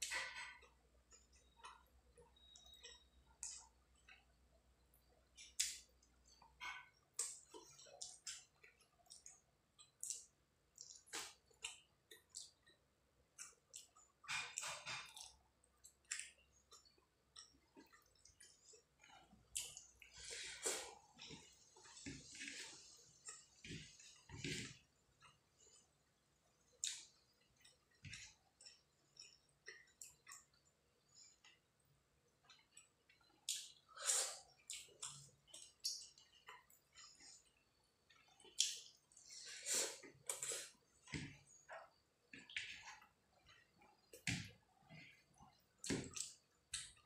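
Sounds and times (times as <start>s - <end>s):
wet mouth clicks and chewing: 0.0s - 4.4s, 5.0s - 25.9s, 26.5s - 31.7s, 32.4s - 39.4s.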